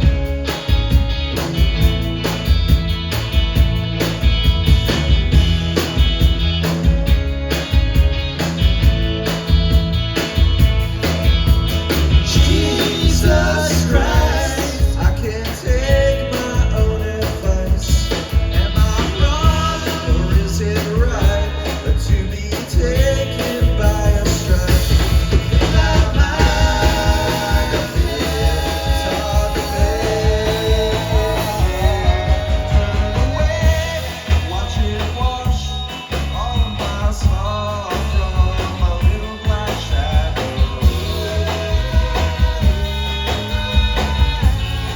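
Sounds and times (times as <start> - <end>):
bass line: 0.0 - 44.9
drums: 0.0 - 44.9
rock band playing: 0.0 - 44.9
person singing lead vocal: 12.2 - 44.9.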